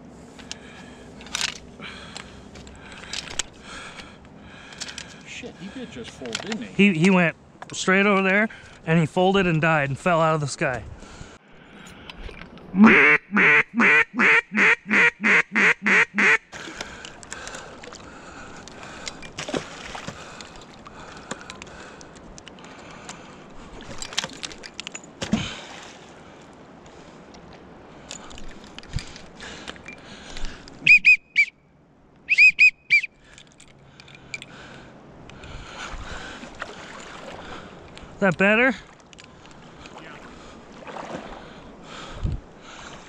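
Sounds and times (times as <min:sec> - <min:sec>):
duck quacking: 0:12.8 - 0:16.4.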